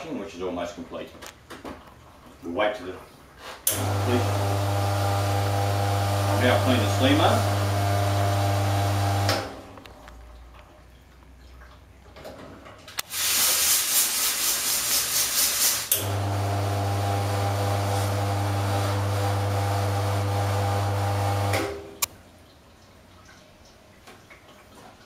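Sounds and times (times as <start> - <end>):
steam wand hissing: 13.0 - 16.0.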